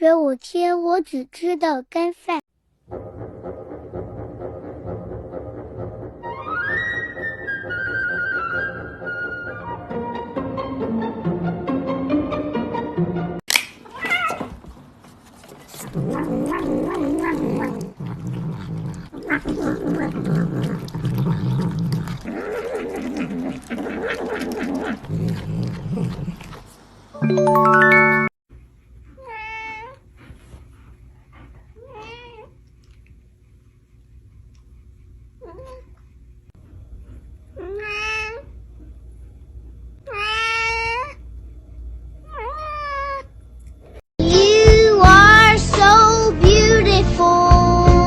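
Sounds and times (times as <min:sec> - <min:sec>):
background music: 0:02.9 - 0:13.4, 0:27.2 - 0:28.3
cats yowling and meowing: 0:13.8 - 0:14.5, 0:31.8 - 0:32.5, 0:37.6 - 0:38.5, 0:40.0 - 0:41.2, 0:42.3 - 0:43.3.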